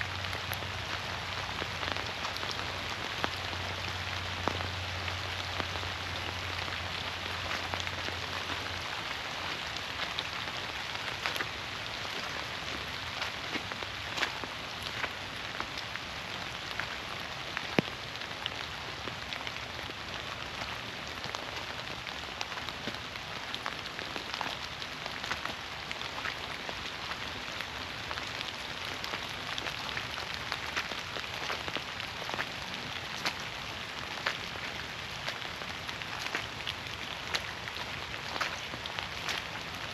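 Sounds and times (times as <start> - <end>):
raindrops ticking on leaves: 0.0 - 39.9
steady rain in forest: 0.0 - 39.9.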